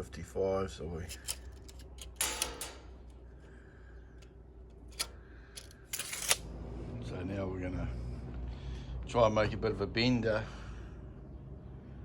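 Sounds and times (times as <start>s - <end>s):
tools and sheet steel clicking: 1.0s - 3.2s, 4.2s - 6.4s.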